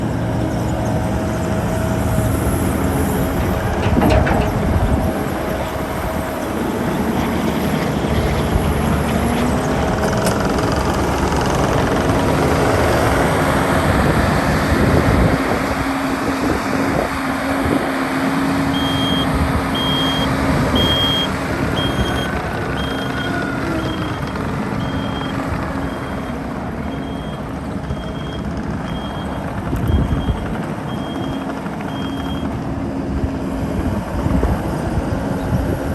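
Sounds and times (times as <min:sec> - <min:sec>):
diesel engine running: 0:00.0 - 0:35.9
reverse alarm beeping: 0:18.7 - 0:32.5.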